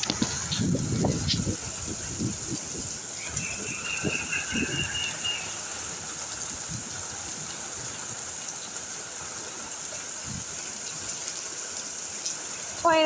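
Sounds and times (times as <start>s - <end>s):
wind gusts buffeting microphone: 0.0s - 11.2s
heavy rain pouring: 0.0s - 13.0s.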